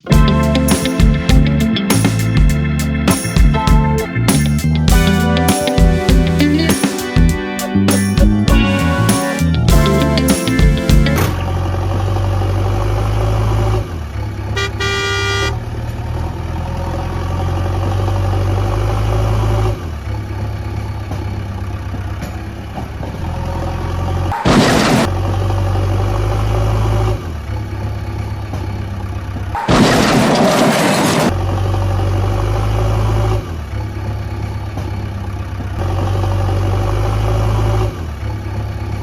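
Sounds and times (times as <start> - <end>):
horn toot: 4.9 - 11.5, 14.6 - 15.6.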